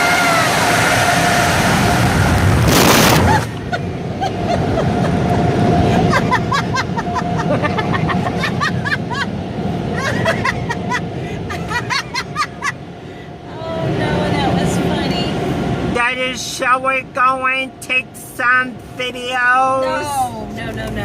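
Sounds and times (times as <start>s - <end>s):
low rumble: 0.6s - 16.0s.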